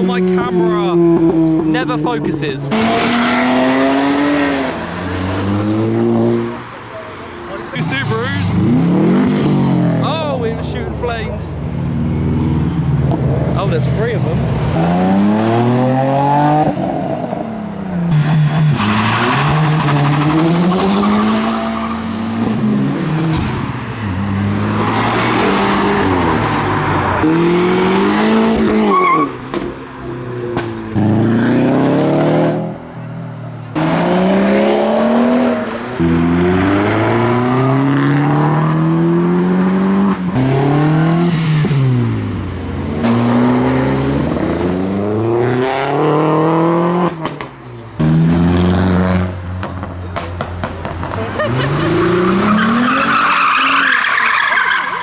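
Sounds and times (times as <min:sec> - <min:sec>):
car engines revving hard: 0:00.0 - 0:55.0
tyres squealing: 0:50.2 - 0:55.0.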